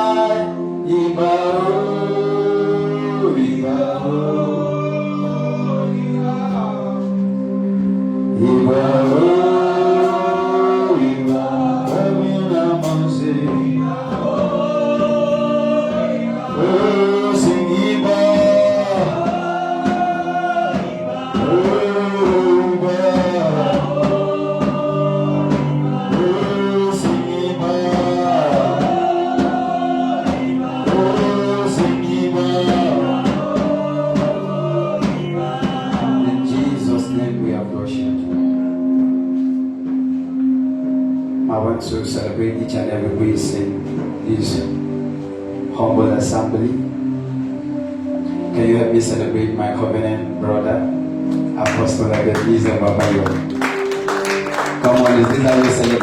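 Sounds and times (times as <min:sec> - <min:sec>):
gospel singers: 0:00.0 - 0:56.0
sustained keyboard chords: 0:00.0 - 0:56.0.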